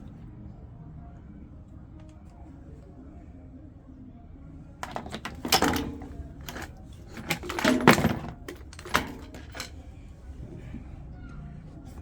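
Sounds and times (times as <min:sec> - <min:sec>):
hard objects clattering: 0:04.8 - 0:09.8.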